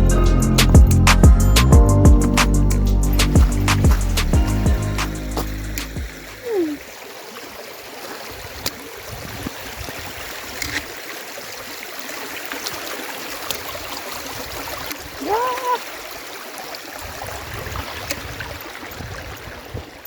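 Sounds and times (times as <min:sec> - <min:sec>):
music: 0:00.0 - 0:06.4
brook running: 0:00.0 - 0:20.0.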